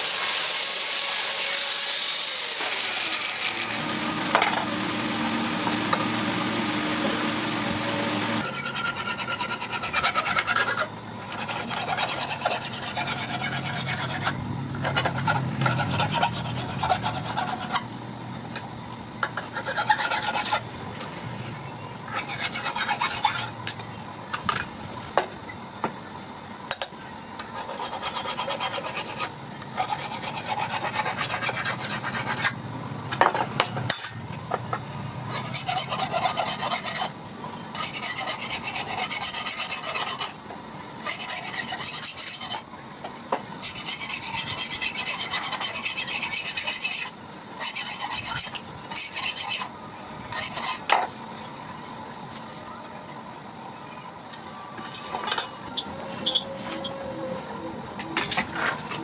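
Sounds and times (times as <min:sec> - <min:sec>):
file rasping on steel: 0:08.4 - 0:17.9, 0:19.3 - 0:23.6, 0:27.4 - 0:32.6, 0:35.3 - 0:40.4, 0:41.0 - 0:42.7, 0:43.6 - 0:49.7, 0:50.3 - 0:51.0.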